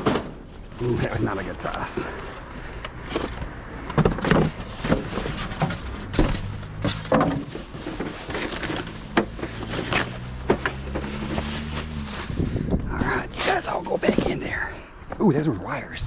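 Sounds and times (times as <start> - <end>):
household items clattering: 3.1 - 11.4.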